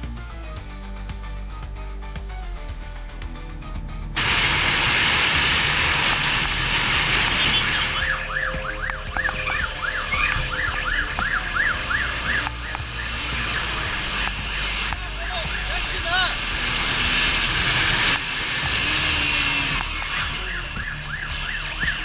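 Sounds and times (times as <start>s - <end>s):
police siren yelping: 4.2s - 15.9s, 19.5s - 22.0s
wind and road noise: 4.2s - 22.0s.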